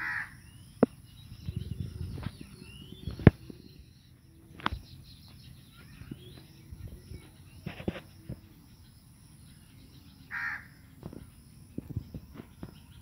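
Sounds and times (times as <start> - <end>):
harsh bird call: 0.0 - 0.7.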